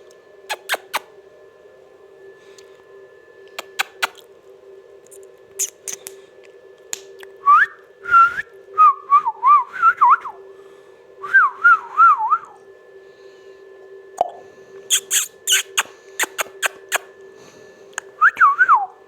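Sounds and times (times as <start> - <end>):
steady low hum: 0.0 - 19.0
parrot whistling: 0.5 - 1.0, 3.6 - 4.2, 5.6 - 6.1, 14.9 - 17.1.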